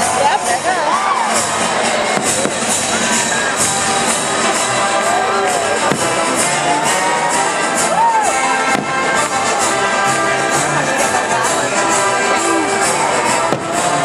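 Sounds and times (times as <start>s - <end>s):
crowd noise: 0.0s - 14.0s
music over loudspeakers: 0.0s - 14.0s
faint firework bangs: 2.0s - 4.7s, 5.7s - 6.7s, 8.4s - 10.3s, 13.2s - 14.0s.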